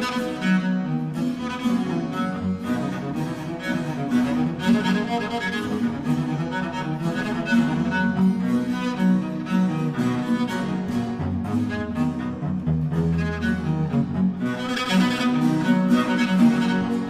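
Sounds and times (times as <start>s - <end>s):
cello with string accompaniment: 0.0s - 17.0s.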